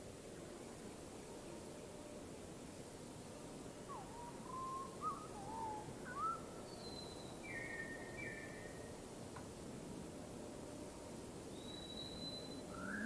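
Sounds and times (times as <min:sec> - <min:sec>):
steady background hiss: 0:00.0 - 0:13.0
birds whistling: 0:11.6 - 0:13.0.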